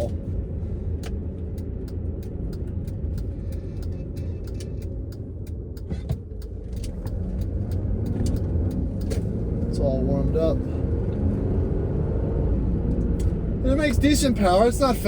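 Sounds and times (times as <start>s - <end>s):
car road and engine rumble: 0.0s - 15.0s
light ticks: 1.0s - 9.2s.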